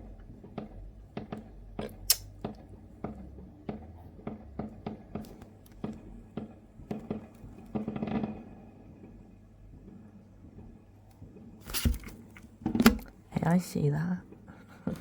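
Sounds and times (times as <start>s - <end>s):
fireworks crackling: 0.0s - 11.9s
fireworks cracking and popping: 0.0s - 12.6s.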